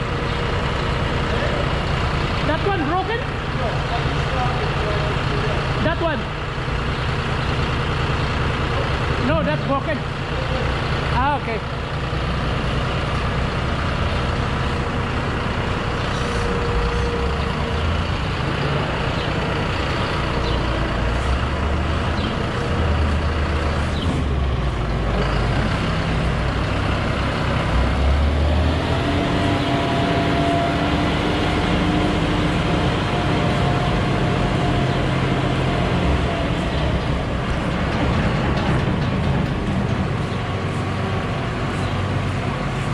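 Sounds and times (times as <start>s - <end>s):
farm vehicle engine running: 0.0s - 42.9s.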